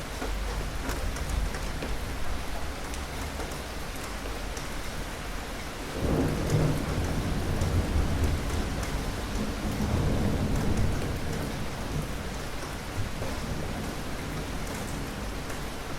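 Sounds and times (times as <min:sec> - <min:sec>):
steady rain falling: 0:00.0 - 0:15.9
rain drop ticks: 0:00.1 - 0:05.0, 0:05.6 - 0:15.9
low rumble of thunder: 0:05.8 - 0:15.9.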